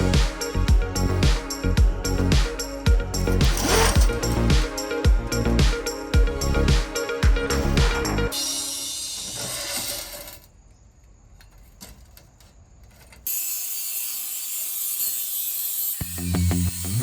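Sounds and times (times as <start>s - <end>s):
high-pitched hiss: 0.0s - 10.5s
metalworking tool hissing: 8.3s - 10.5s, 13.3s - 17.0s.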